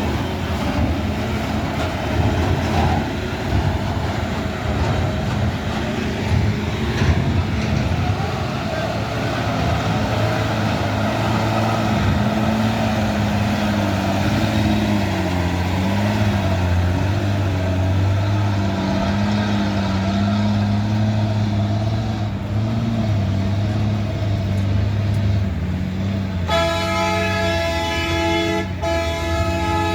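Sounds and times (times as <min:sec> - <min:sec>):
heavy vehicle engine droning: 0:00.0 - 0:29.9
loud horn: 0:26.4 - 0:29.9.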